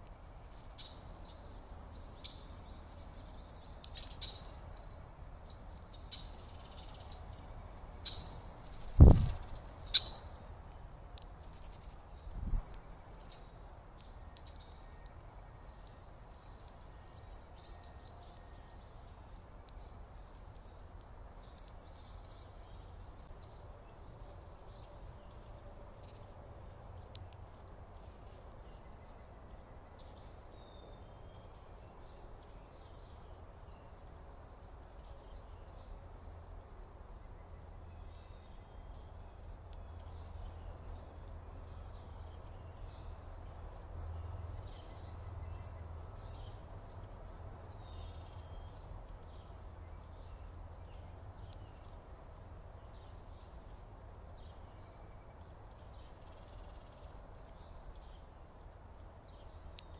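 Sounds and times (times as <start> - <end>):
bird chirps: 0.4 - 10.4, 37.1 - 52.1, 52.8 - 58.3.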